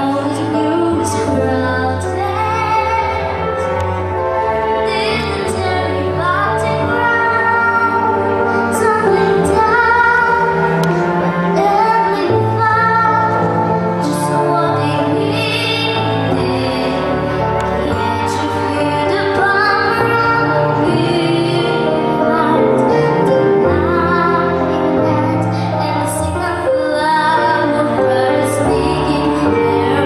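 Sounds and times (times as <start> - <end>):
young woman singing: 0.0 - 3.8, 4.8 - 30.0
instrumental accompaniment with bass: 0.0 - 30.0.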